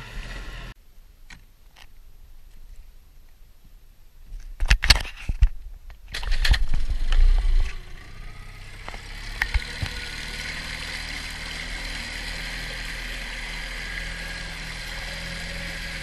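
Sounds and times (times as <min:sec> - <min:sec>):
outboard motor running: 0:08.2 - 0:16.0.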